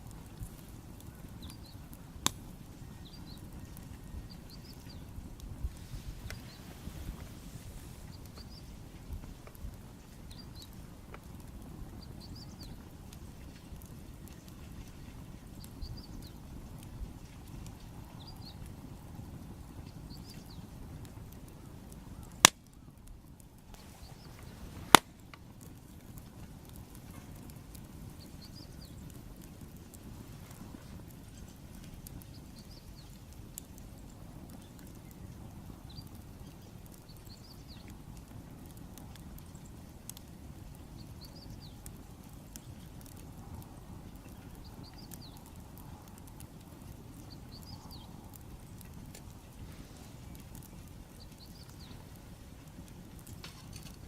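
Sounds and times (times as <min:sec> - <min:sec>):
low steady rumble: 0:00.0 - 0:21.2
wood bonfire crackling: 0:00.0 - 0:54.0
small bird singing: 0:00.9 - 0:02.1, 0:02.7 - 0:05.4, 0:06.2 - 0:06.8, 0:08.0 - 0:08.8, 0:10.0 - 0:10.8, 0:11.9 - 0:16.5, 0:17.7 - 0:18.8, 0:19.6 - 0:20.8, 0:28.1 - 0:29.2, 0:30.9 - 0:38.0, 0:40.7 - 0:43.2, 0:44.1 - 0:45.5, 0:46.4 - 0:48.8, 0:51.0 - 0:52.2.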